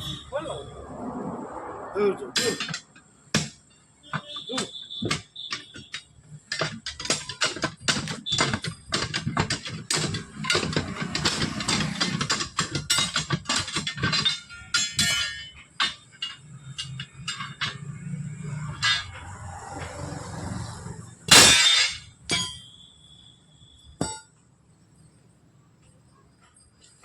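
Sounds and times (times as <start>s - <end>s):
tools striking metal wheel rim: 2.4s - 20.7s, 21.3s - 24.4s.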